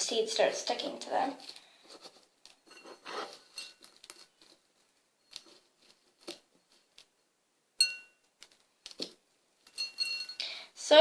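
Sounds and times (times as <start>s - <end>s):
soft scraping rustles: 1.2s - 7.2s
clink against bowl: 2.7s - 3.8s, 7.8s - 8.2s, 9.8s - 10.5s.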